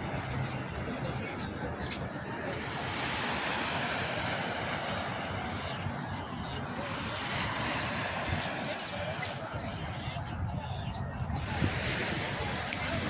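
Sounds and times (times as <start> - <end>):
sea surf washing ashore: 0.0 - 13.0
wind buffeting microphone: 4.0 - 13.0.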